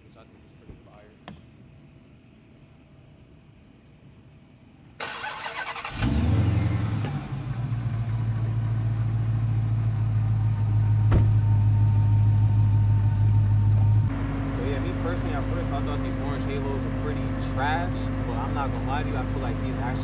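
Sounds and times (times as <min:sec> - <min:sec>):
engine starter cranking: 0:05.0 - 0:07.2
engine loud idle: 0:05.0 - 0:20.0.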